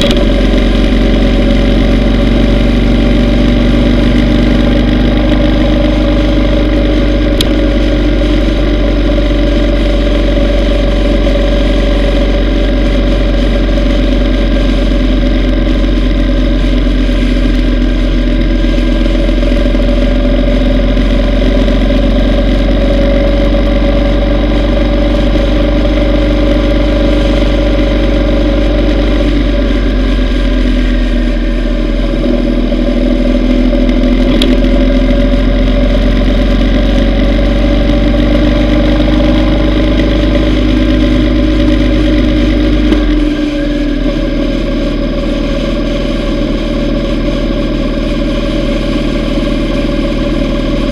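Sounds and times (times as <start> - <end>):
motorcycle engine rumbling: 0.0 - 50.9.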